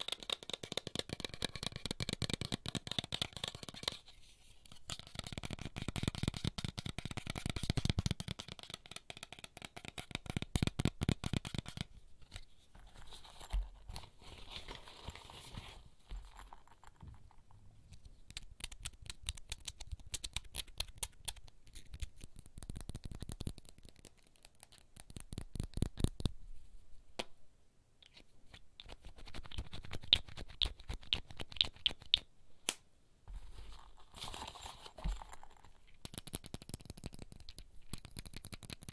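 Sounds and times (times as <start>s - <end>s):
fingertips tapping and scratching: 0.0s - 15.2s, 16.0s - 26.3s, 33.5s - 38.9s.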